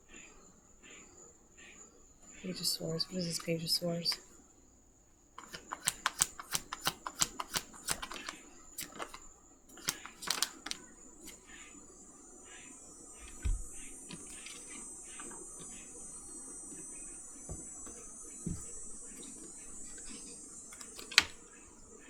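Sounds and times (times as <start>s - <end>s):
cards shuffling: 5.4s - 11.4s, 19.8s - 21.4s.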